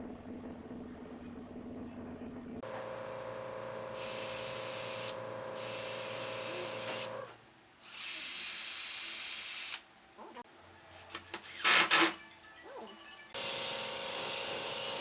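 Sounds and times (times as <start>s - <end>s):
electric power tool motor humming: 4.0s - 7.2s.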